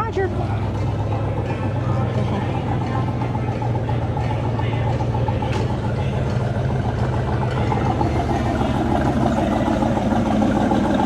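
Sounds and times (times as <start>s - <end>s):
car engine running steadily: 0.0s - 11.0s.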